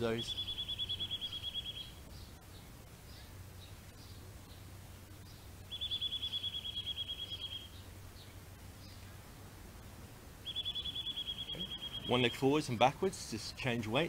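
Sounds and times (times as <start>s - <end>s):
bird trilling: 0.0s - 2.0s, 5.7s - 7.9s, 10.4s - 12.5s
birds chirping: 0.0s - 9.5s, 10.4s - 13.2s
low steady hum: 0.0s - 14.0s.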